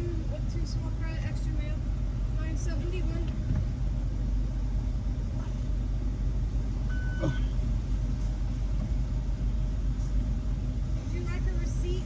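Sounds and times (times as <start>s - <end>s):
car engine idling: 0.0s - 12.0s
short high beep: 6.9s - 7.5s.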